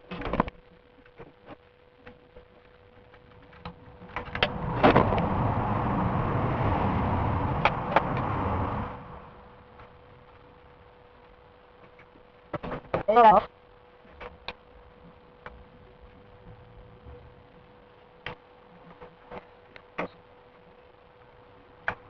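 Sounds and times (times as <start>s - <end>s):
loud low rushing noise: 3.8s - 10.6s.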